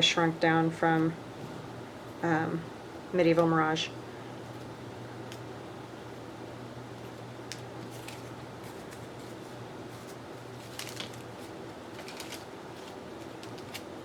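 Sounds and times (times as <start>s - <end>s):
low room hum: 0.0s - 14.0s
paper pieces clicking and rustling: 7.5s - 9.4s, 10.0s - 13.9s.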